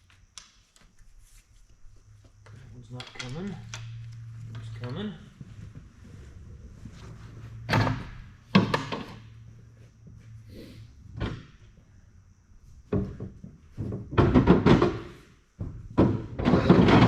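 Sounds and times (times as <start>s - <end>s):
metal clunks and knocks: 7.5s - 9.5s, 11.1s - 11.8s, 12.8s - 17.0s.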